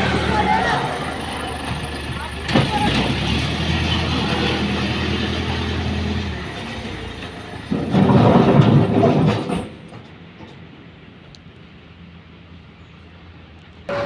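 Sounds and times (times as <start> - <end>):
loud rattling rumble: 0.0 - 11.0
diesel machinery engine hum: 0.0 - 14.0.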